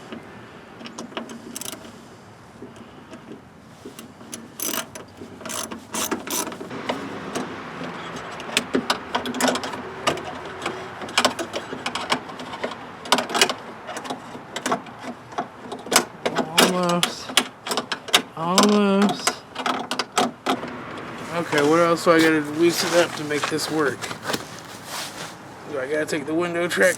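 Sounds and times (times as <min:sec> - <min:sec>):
ratchet wrench clicking: 0:04.6 - 0:04.9.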